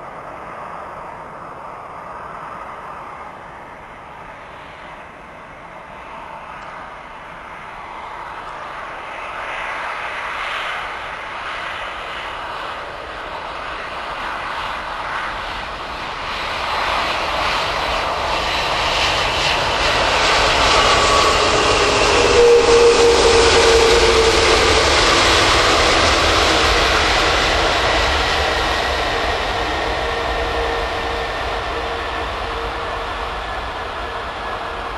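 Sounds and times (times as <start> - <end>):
jet airliner engine noise: 0.0 - 34.9
whining tone: 19.5 - 34.9.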